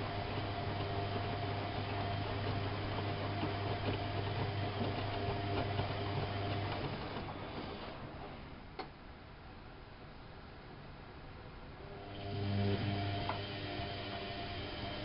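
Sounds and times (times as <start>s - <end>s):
washing machine running: 0.0s - 8.6s, 11.9s - 15.0s.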